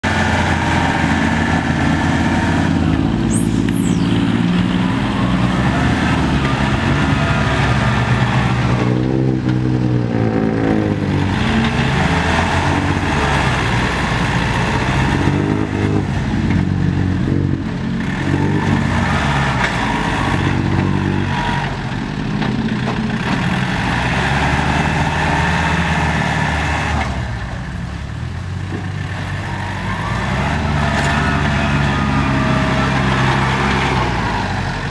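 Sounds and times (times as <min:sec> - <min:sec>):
diesel tractor engines revving: 0:00.0 - 0:34.9
high-pitched squeal: 0:02.7 - 0:08.9.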